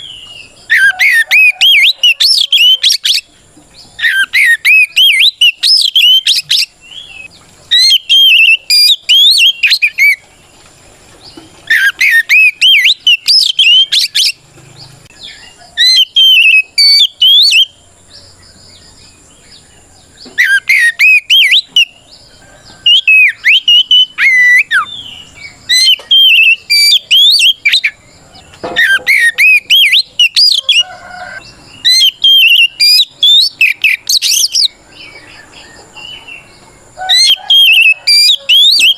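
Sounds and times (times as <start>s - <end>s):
bird singing swooping whistles: 0.0s - 3.3s, 4.0s - 10.2s, 11.7s - 14.4s, 15.2s - 17.8s, 20.4s - 35.6s, 36.2s - 38.9s.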